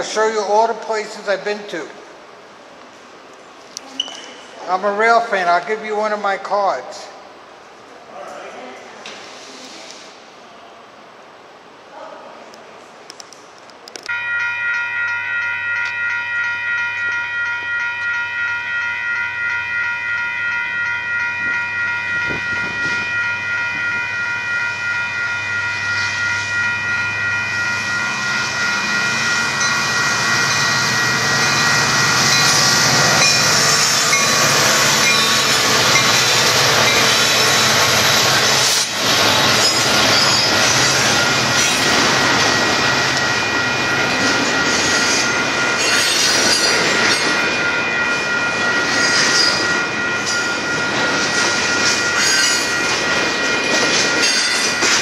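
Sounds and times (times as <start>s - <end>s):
freight train rumbling past: 0.0s - 3.7s, 14.1s - 55.0s
crossing bell ringing: 14.0s - 55.0s
train wheel squeal: 25.8s - 55.0s.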